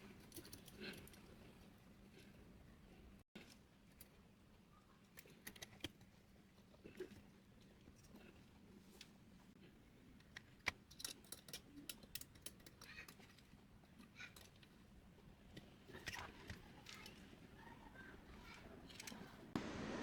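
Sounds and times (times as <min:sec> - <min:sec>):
small printer parts clicking: 0:05.1 - 0:06.1, 0:10.2 - 0:14.7, 0:15.5 - 0:17.3, 0:18.2 - 0:19.4.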